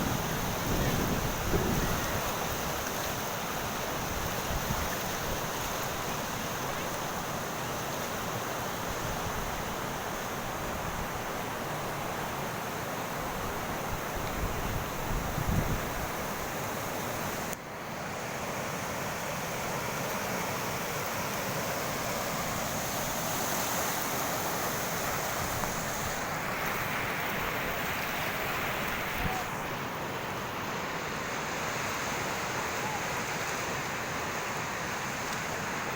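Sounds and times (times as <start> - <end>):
wind gust buffeting microphone: 0.0 - 2.3
rushing water: 0.0 - 35.9
wind: 0.0 - 35.9.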